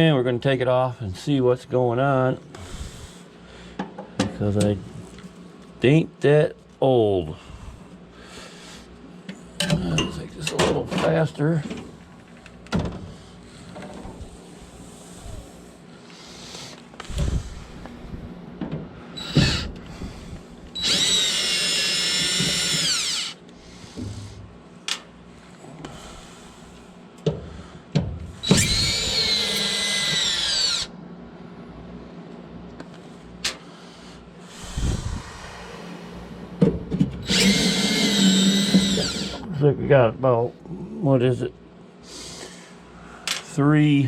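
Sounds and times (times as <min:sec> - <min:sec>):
power drill spinning: 0:19.2 - 0:23.4, 0:28.4 - 0:30.9, 0:37.2 - 0:39.4.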